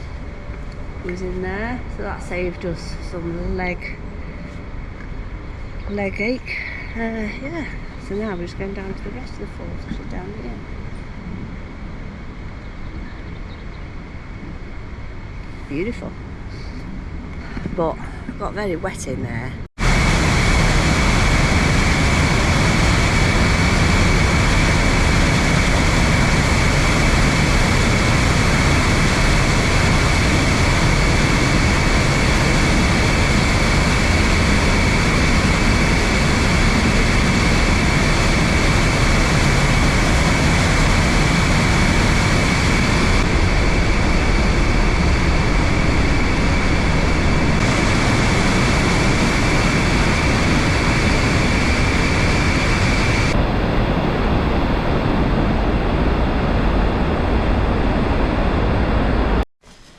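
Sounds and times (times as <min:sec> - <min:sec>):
waterfall roaring: 0:19.8 - 0:59.4.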